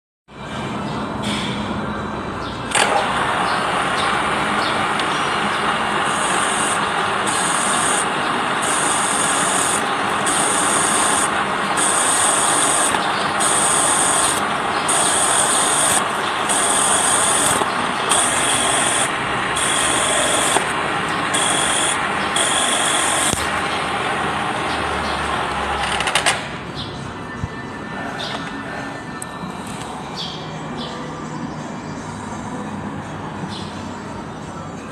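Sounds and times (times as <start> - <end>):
milling machine cutting metal: 2.7 - 26.2
high-pitched cutting sound: 3.4 - 25.7.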